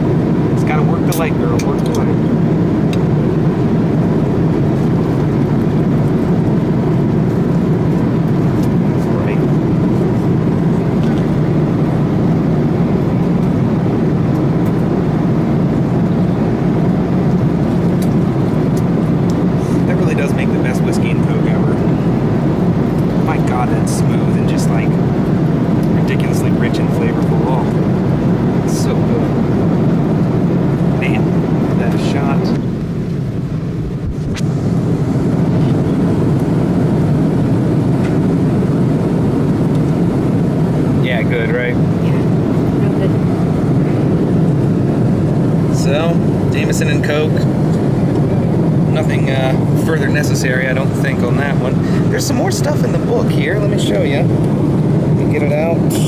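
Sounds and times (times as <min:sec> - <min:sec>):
airplane cabin engine rush: 0:00.0 - 0:56.0.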